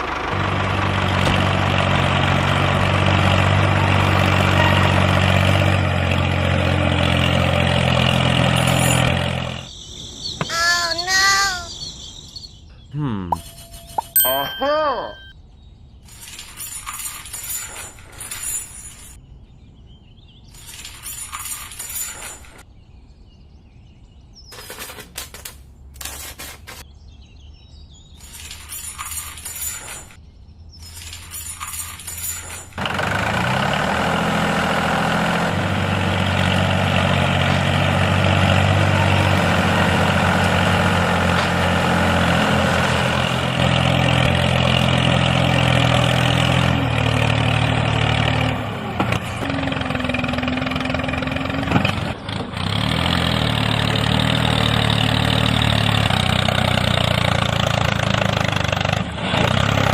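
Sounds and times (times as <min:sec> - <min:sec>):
small tractor motor running: 0:00.0 - 0:09.7, 0:31.6 - 0:59.9.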